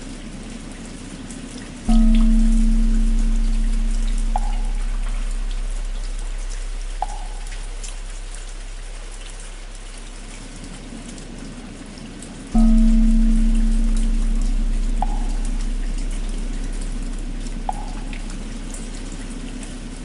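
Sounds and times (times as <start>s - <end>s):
steady rain: 0.0s - 20.0s
large bell humming: 1.9s - 9.7s, 12.6s - 20.0s.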